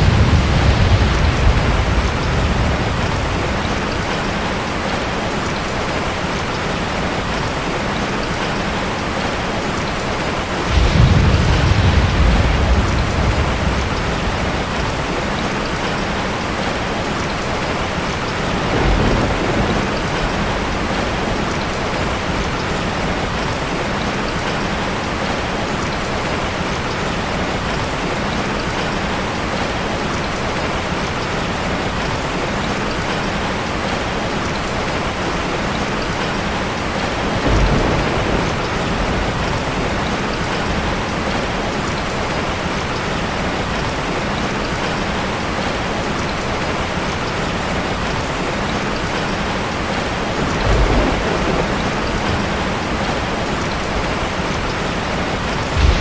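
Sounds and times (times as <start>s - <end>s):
heavy rain: 0.0s - 56.0s
low rumbles: 10.6s - 15.6s, 50.6s - 56.0s.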